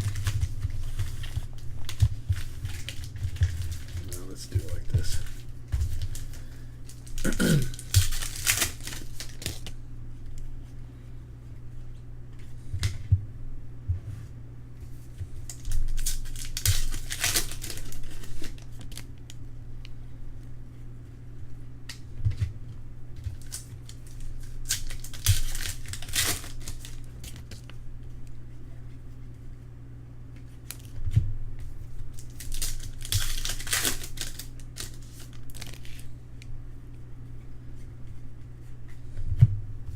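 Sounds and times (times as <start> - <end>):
card pack wrappers tearing: 0.0 - 9.8, 15.4 - 19.1, 23.3 - 27.8, 32.1 - 36.1.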